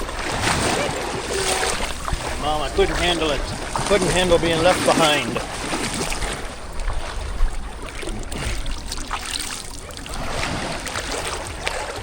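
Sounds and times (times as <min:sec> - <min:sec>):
sea water lapping in surf: 0:00.0 - 0:12.0
wind rumbling on microphone: 0:00.0 - 0:12.0.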